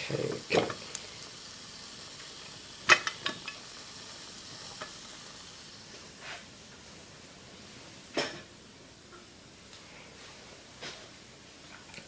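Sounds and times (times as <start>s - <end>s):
steam hissing: 0.0s - 8.1s.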